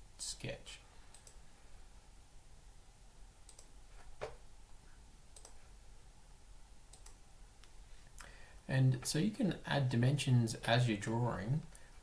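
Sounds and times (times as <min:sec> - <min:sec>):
computer mouse clicks: 0:01.1 - 0:01.4, 0:03.5 - 0:04.4, 0:05.3 - 0:05.6, 0:06.9 - 0:07.8.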